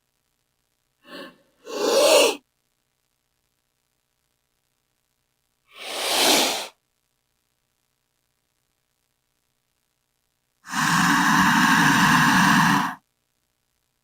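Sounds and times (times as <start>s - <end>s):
snake hissing: 1.0s - 2.4s, 5.7s - 6.7s, 10.6s - 13.0s.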